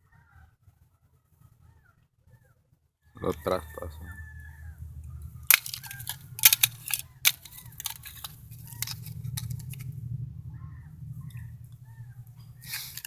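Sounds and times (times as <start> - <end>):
steady low rumble: 3.2 - 13.0
sharp clicks and crunches: 5.5 - 9.8, 12.7 - 13.0.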